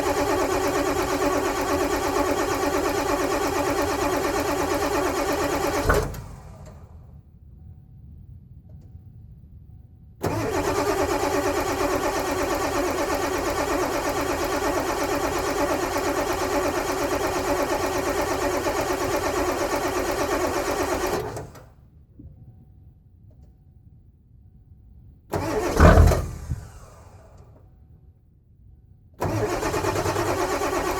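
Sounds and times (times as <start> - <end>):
diesel engine starter cranking: 0.0 - 7.1, 10.2 - 21.8, 25.3 - 27.7, 29.2 - 30.9.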